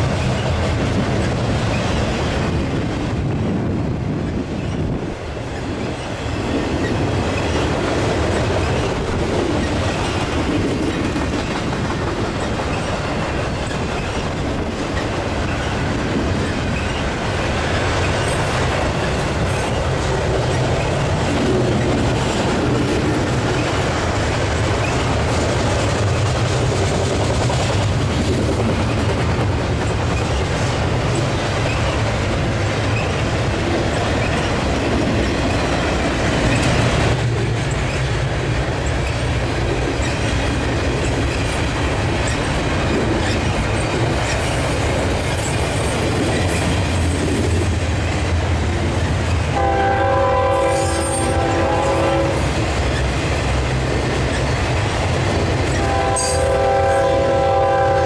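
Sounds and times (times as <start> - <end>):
train wheels rumbling and clattering: 0.0 - 58.0
diesel locomotive horn chord: 49.6 - 52.4, 55.8 - 58.0.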